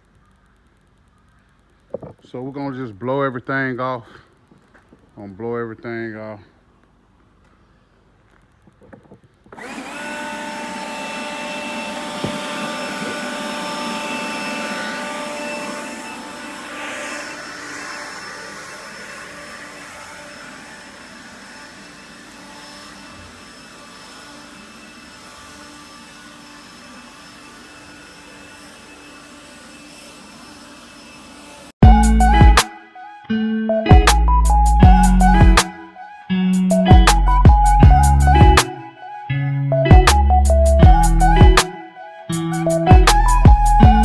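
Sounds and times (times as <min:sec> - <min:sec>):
leaf blower whining: 0:09.5 - 0:33.2.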